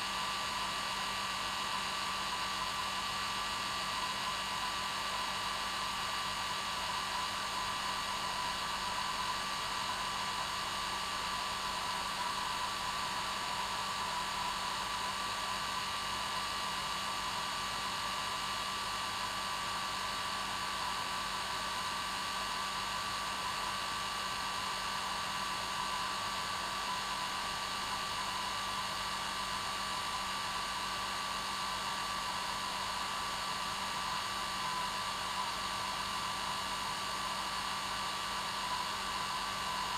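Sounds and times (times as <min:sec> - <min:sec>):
hair dryer running: 0:24.3 - 0:39.9.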